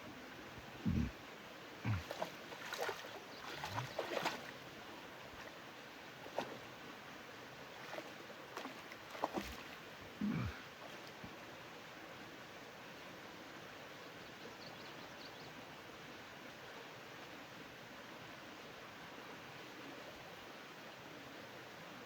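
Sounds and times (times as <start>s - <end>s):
dull low thumps: 0.8s - 1.1s
water splashing and sloshing: 1.8s - 6.9s, 7.6s - 10.0s.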